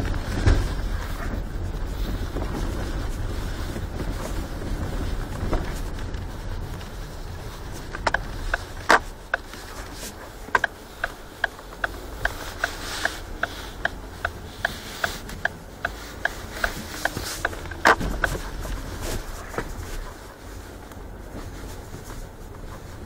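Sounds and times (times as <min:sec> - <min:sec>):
low road rumble: 0:00.0 - 0:23.0
steady ticking: 0:07.9 - 0:09.7, 0:10.5 - 0:18.4.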